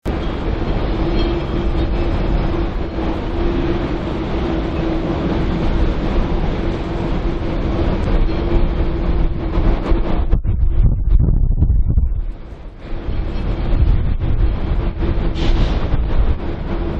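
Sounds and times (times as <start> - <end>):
wind rumbling on microphone: 0.0 - 16.9
droning hum: 0.1 - 16.9.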